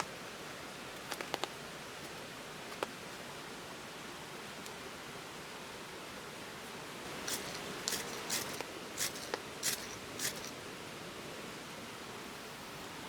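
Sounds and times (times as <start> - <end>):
water hiss: 7.1 - 10.7.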